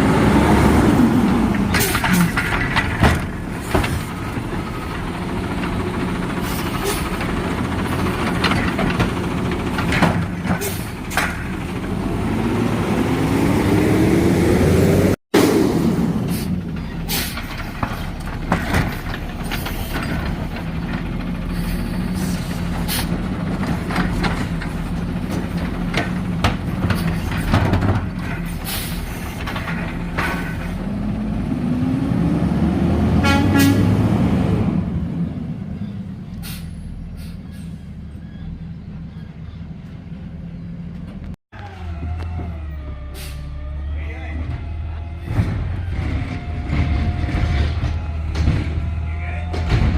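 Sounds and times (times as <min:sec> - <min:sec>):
diesel engine running: 0:00.0 - 0:49.9
metal clanks and knocks: 0:01.4 - 0:12.0, 0:16.7 - 0:30.8, 0:44.4 - 0:49.9.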